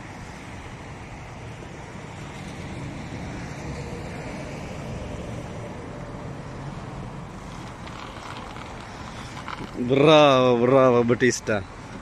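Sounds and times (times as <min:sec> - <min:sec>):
outdoor noise: 0:00.0 - 0:12.0.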